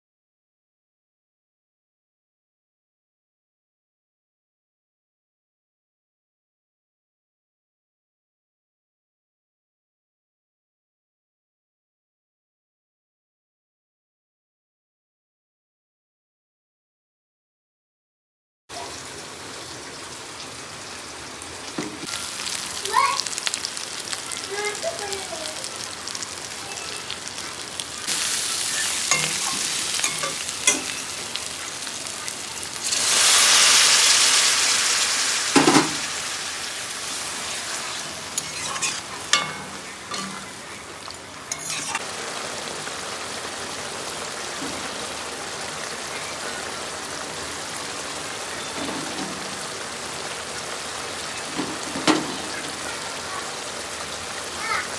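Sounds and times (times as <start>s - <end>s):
food sizzling in hot oil: 18.7s - 54.9s
utensil knocking against pan: 35.6s - 36.0s, 39.3s - 40.5s.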